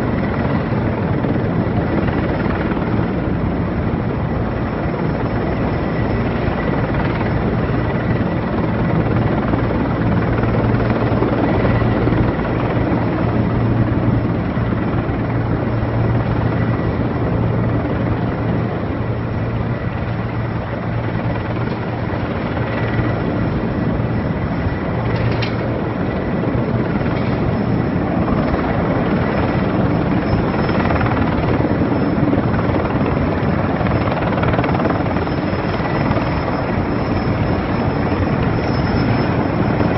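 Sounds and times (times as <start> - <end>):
helicopter rotor and turbine drone: 0.0 - 39.9
thin high turbine whine: 0.0 - 39.9.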